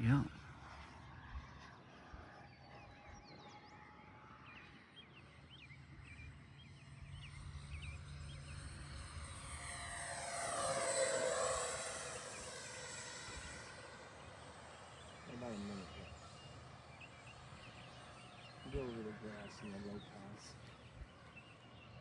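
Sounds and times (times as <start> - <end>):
electric ducted fans whining: 5.5 - 22.0.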